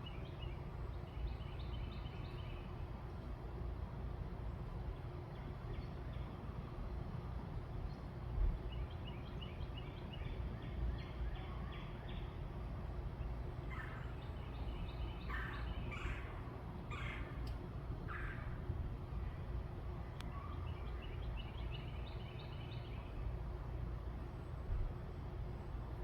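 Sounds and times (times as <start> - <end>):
birds chirping: 13.1 - 17.5.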